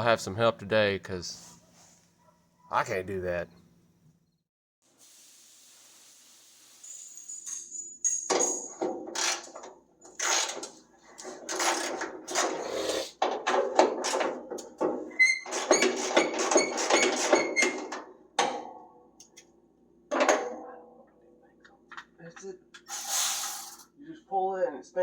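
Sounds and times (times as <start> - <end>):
tools knocking and clanking on metal: 13.2 - 18.9, 20.1 - 22.2.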